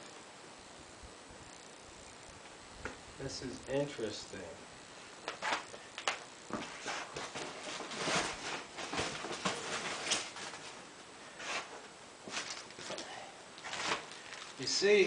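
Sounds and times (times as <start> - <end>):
packaging rustling: 5.3 - 10.8, 11.4 - 13.0, 13.6 - 14.7.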